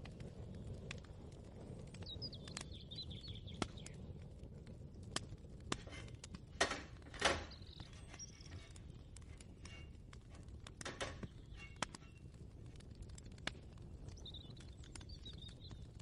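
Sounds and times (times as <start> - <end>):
light clicks and knocks: 5.7 - 12.2
scraping bursts: 5.7 - 12.3.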